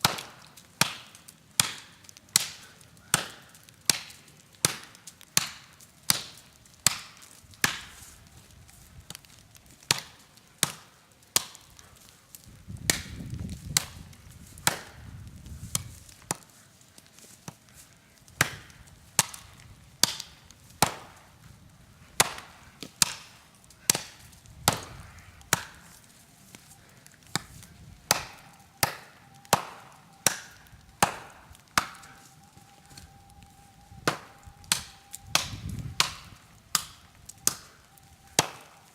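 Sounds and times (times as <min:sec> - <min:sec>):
blade chopping tree trunk: 0:00.0 - 0:08.0, 0:27.2 - 0:32.2, 0:38.4 - 0:38.7.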